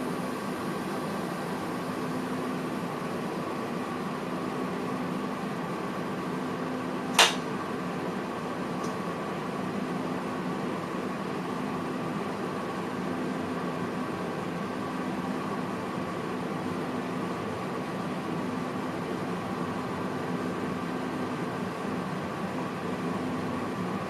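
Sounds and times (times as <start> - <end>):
sharp click: 7.1 - 7.5.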